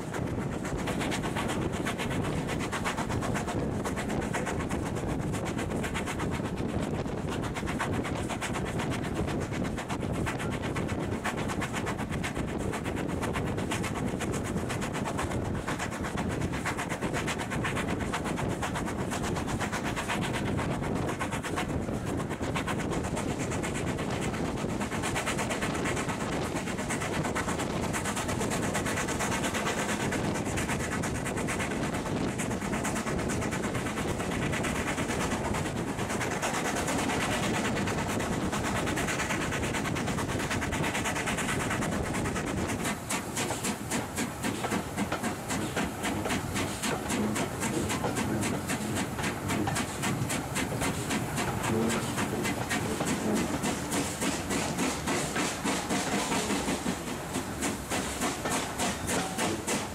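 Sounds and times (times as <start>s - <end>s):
train wheels clattering on track: 0.0s - 59.9s
rapid even pulsing: 27.9s - 59.9s.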